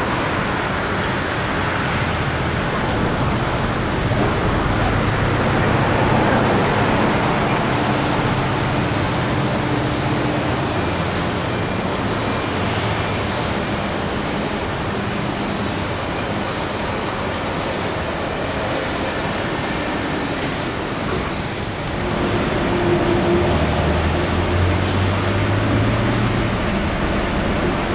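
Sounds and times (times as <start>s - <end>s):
steady rushing noise: 0.0s - 27.9s.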